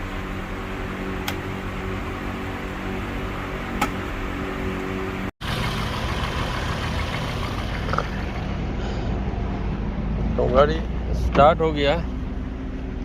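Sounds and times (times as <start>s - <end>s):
heat gun fan humming: 0.0s - 5.2s
car engine idling: 0.0s - 13.0s
switch click: 1.2s - 1.4s.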